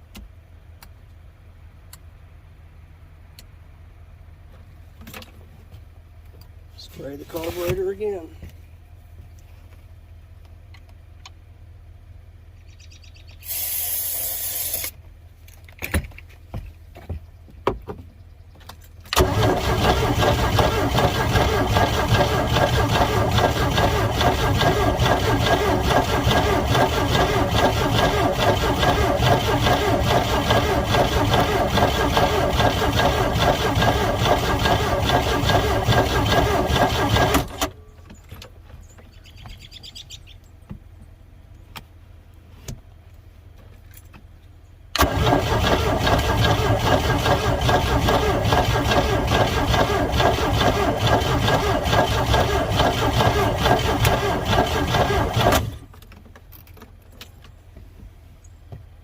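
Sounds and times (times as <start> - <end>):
boat engine cranking: 19.2 - 37.7, 45.0 - 55.8.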